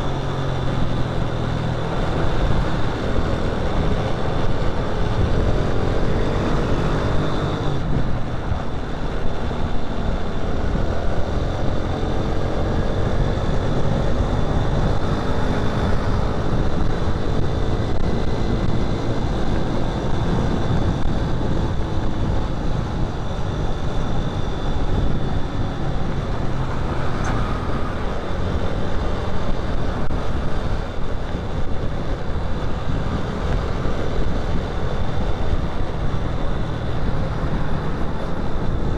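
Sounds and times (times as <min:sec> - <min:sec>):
motorcycle engine running: 0:00.0 - 0:38.9
other vehicles in traffic: 0:00.0 - 0:38.9
wind rumble on microphone: 0:00.0 - 0:38.9.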